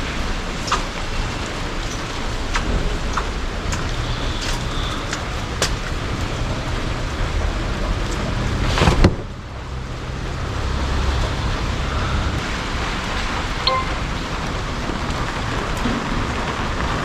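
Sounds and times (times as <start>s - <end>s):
heavy rain falling: 0.0s - 17.0s
short beep: 13.6s - 14.1s.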